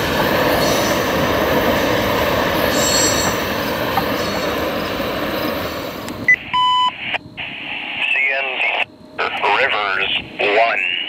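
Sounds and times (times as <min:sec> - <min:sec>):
train wheels rumbling on rails: 0:00.0 - 0:06.3
radio scanner beep: 0:06.3 - 0:11.0.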